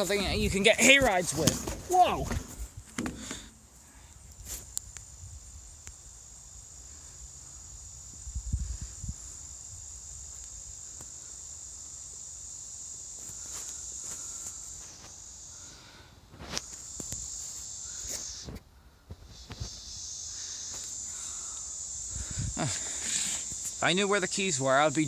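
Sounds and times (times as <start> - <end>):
knocks and footsteps: 0.0 - 3.8
insects singing: 0.0 - 25.0.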